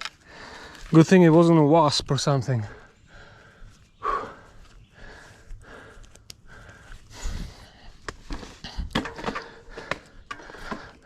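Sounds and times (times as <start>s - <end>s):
heavy breathing: 0.1s - 0.9s, 2.6s - 11.0s
bike clicks and knocks: 8.0s - 11.0s.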